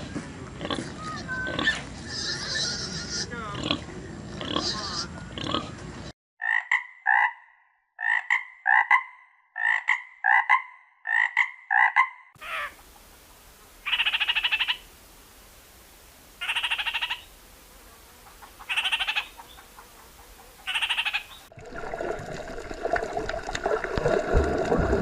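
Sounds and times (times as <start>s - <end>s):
frogs croaking: 6.4s - 12.9s, 13.7s - 15.0s, 15.8s - 21.5s.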